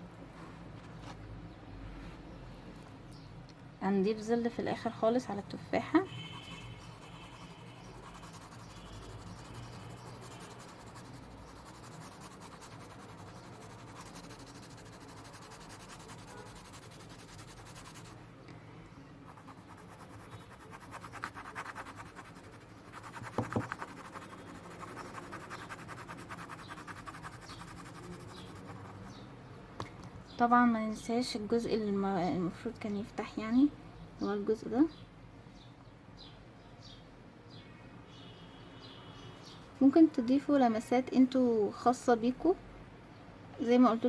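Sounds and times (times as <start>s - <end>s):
pencil scratching on paper: 5.9s - 18.2s, 19.3s - 29.2s.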